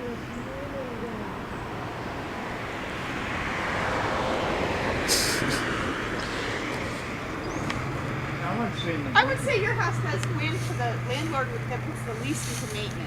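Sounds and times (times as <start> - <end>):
car passing: 0.0 - 13.0.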